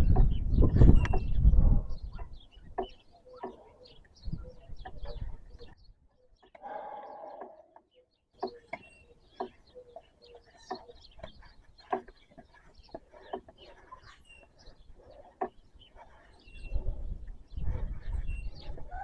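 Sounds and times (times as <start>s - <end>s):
bird chirps: 0.0s - 19.0s
sharp clicks and knocks: 0.1s - 1.3s, 7.4s - 14.2s.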